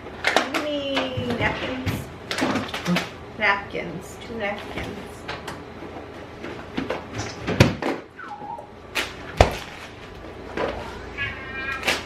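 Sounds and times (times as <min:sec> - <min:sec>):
cat meowing: 0:11.1 - 0:12.0.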